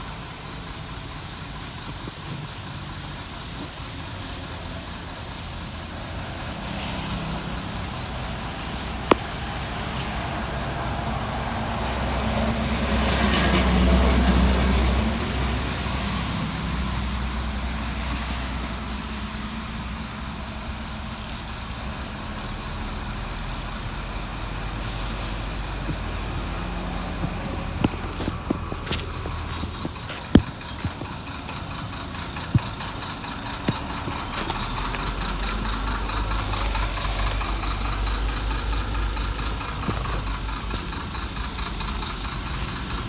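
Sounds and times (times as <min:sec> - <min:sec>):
diesel engine drone: 0:00.0 - 0:43.0
hiss: 0:24.7 - 0:26.4.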